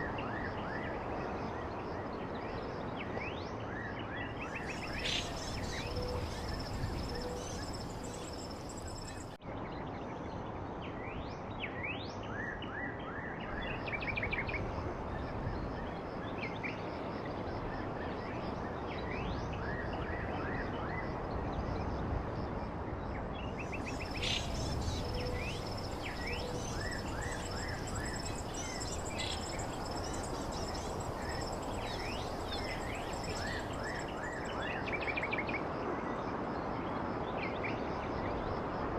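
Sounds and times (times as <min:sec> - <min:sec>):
outdoor background hiss: 0:00.0 - 0:09.6, 0:13.4 - 0:38.9
small birds chirping: 0:04.5 - 0:09.4, 0:23.4 - 0:35.2.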